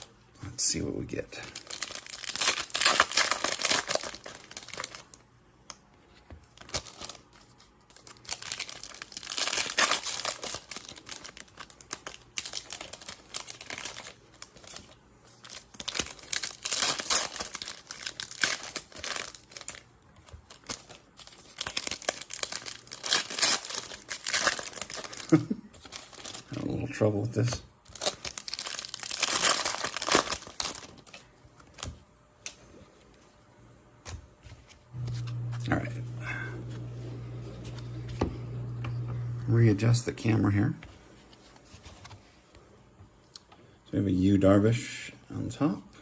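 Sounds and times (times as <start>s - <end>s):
packaging torn and crinkled: 1.4s - 5.8s, 6.5s - 26.8s, 27.8s - 31.9s.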